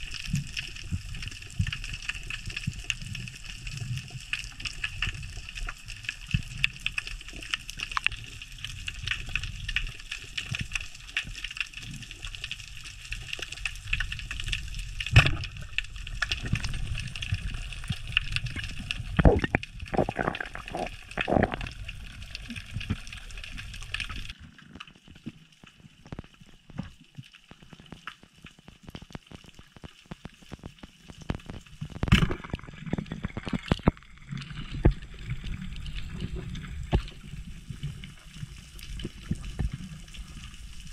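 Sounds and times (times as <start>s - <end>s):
crackle of small clicks: 0.0s - 40.9s
water sloshing and gurgling: 0.0s - 40.9s.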